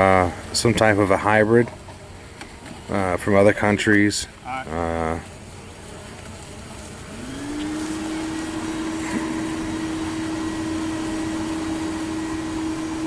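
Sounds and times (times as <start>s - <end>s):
vacuum motor running: 5.9s - 13.0s.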